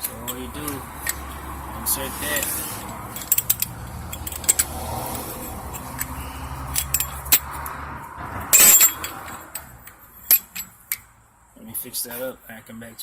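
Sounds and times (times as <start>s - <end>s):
metal tool parts clicking: 2.3s - 7.8s.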